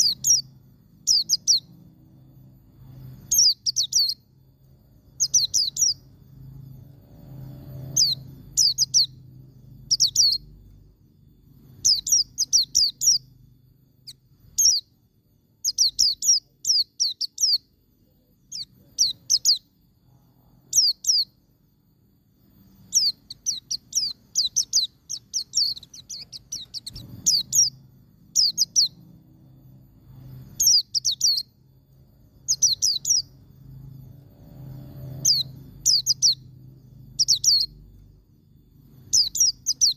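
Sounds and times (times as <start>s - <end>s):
bird singing high sharp notes: 0.0s - 1.8s, 2.9s - 4.3s, 5.1s - 10.6s, 11.7s - 13.3s, 22.7s - 29.1s, 30.2s - 31.6s, 32.4s - 33.4s, 34.4s - 37.8s, 39.0s - 39.9s.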